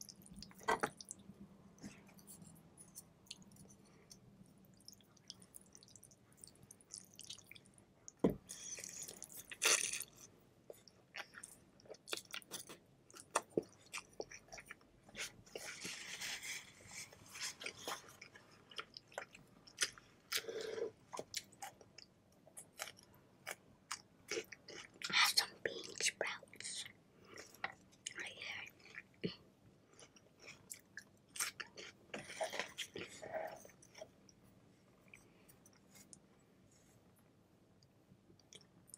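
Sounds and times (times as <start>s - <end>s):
chewing noodles with wet mouth clicks: 3.2s - 8.2s.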